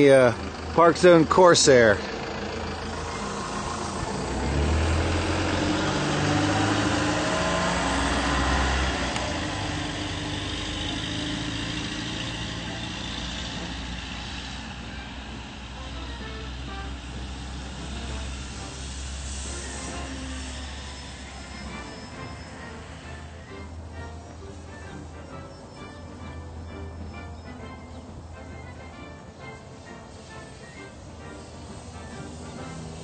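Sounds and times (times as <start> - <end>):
model plane motor whine: 2.1 - 24.1, 30.3 - 33.0.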